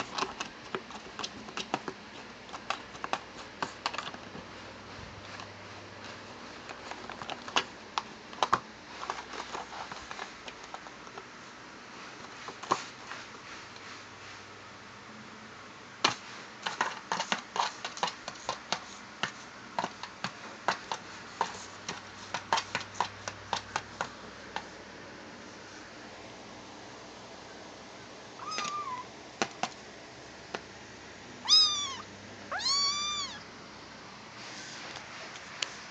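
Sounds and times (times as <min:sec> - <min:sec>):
kitten scratching cardboard box: 0:00.0 - 0:11.2, 0:16.1 - 0:24.7
kitten meowing: 0:28.4 - 0:29.1, 0:31.4 - 0:33.5.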